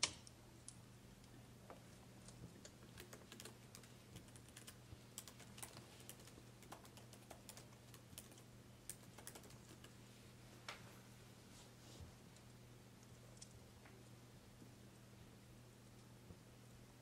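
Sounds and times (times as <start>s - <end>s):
steady low hum: 0.0s - 17.0s
faint clicks and crackles: 12.3s - 15.1s, 15.7s - 16.8s.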